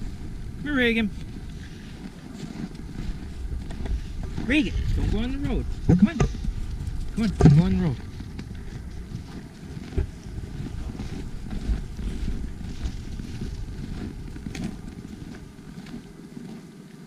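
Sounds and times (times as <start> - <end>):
wind rumbling on microphone: 0.0 - 17.0
dull handling thumps: 7.2 - 8.5.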